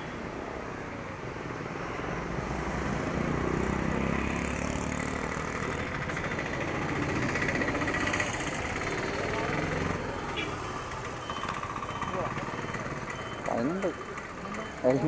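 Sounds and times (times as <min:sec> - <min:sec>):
vehicle engine idling: 0:05.6 - 0:15.0.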